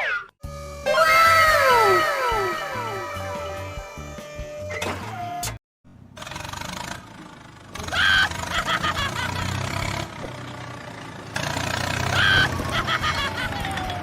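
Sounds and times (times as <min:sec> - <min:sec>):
vehicle engines humming: 0:00.4 - 0:14.0.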